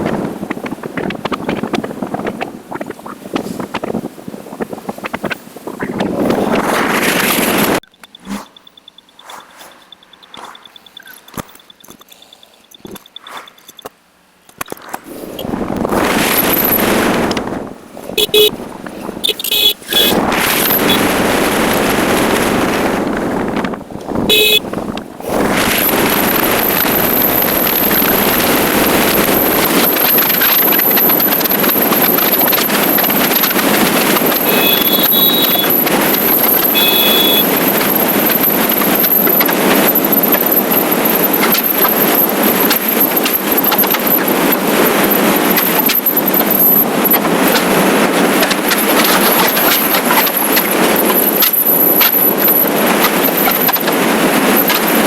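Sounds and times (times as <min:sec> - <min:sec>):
wind and road noise: 0:00.0 - 0:55.0
motorcycle horn toots: 0:18.2 - 0:18.6, 0:19.2 - 0:20.2, 0:24.2 - 0:24.7, 0:34.4 - 0:37.7.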